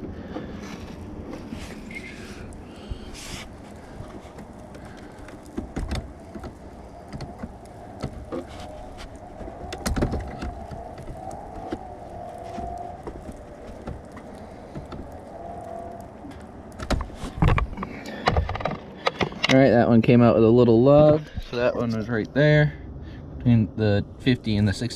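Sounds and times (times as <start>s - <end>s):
steady background noise: 0.0s - 24.9s.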